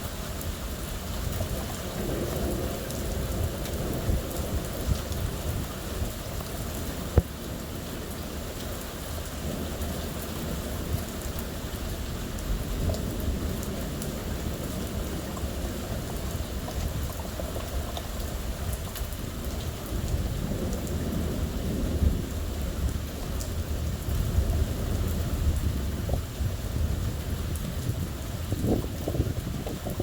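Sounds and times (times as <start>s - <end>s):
raindrops tapping surfaces: 0.0s - 30.0s
steady rain: 0.0s - 30.0s
low thunder: 19.9s - 30.0s.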